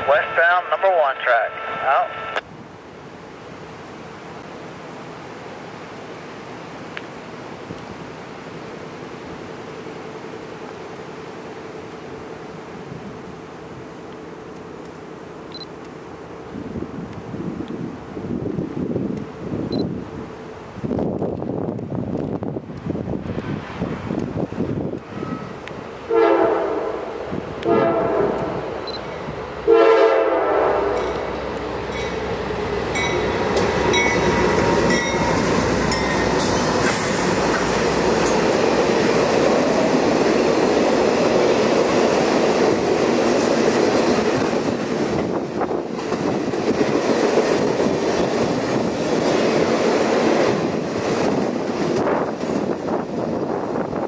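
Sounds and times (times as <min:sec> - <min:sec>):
train rumbling past: 0:00.0 - 0:54.0
locomotive air horn blasts: 0:26.1 - 0:28.7, 0:29.7 - 0:31.0
wheels clacking on rail: 0:30.8 - 0:54.0.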